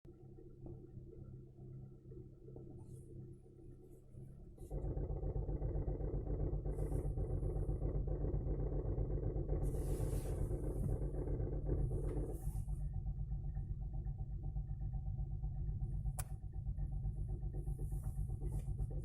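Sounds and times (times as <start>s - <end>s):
car engine running: 0.1s - 19.0s
rough rumbling engine clatter: 0.1s - 19.0s.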